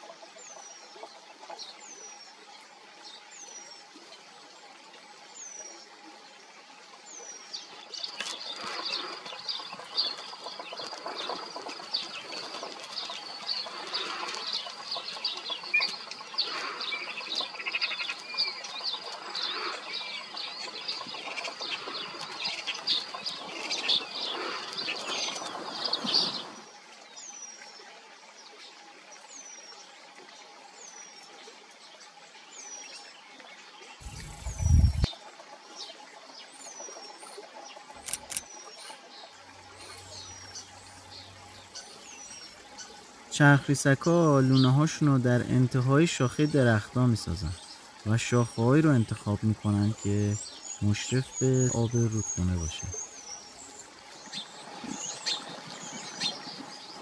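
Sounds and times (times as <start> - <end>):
rapid high bird calls: 34.0 - 35.1.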